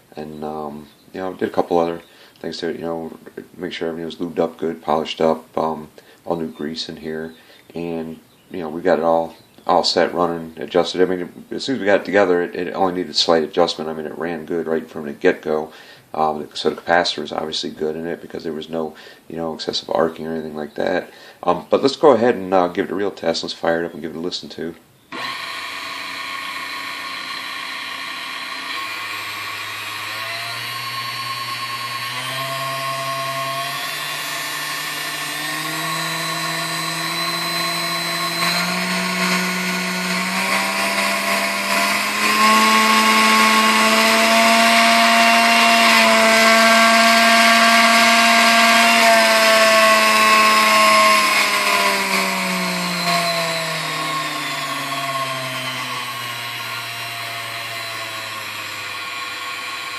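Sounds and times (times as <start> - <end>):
stand mixer motor whining: 25.1 - 59.9.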